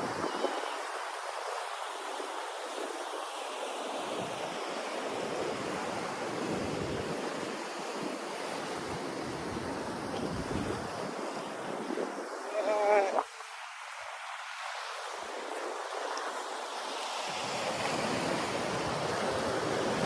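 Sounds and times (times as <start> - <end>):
ocean surf breaking: 0.0 - 20.0
wind gusting on microphone: 5.4 - 13.3.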